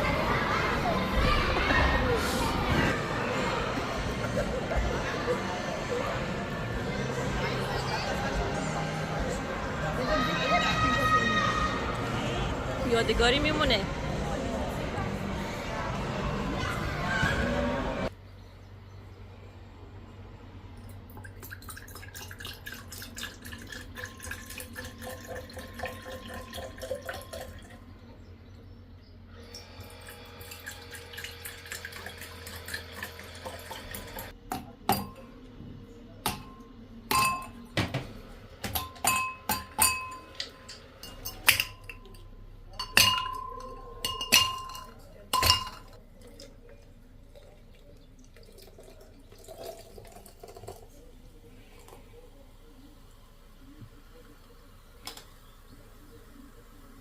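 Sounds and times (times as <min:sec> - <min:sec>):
liquid pouring into glass: 0:21.1 - 0:27.8, 0:30.0 - 0:34.3, 0:42.8 - 0:51.2
clinks against drinking glass: 0:36.3 - 0:37.7, 0:38.6 - 0:46.0.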